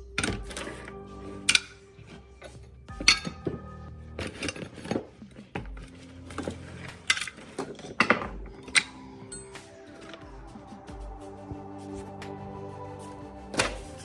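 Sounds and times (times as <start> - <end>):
faint background music: 0.0 - 14.0.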